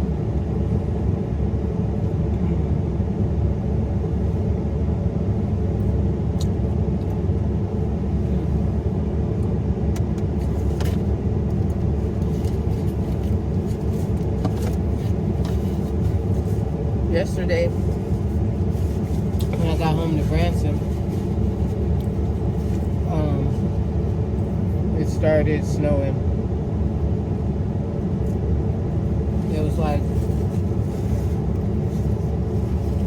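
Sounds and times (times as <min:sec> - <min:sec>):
car engine idling: 0:07.4 - 0:33.0.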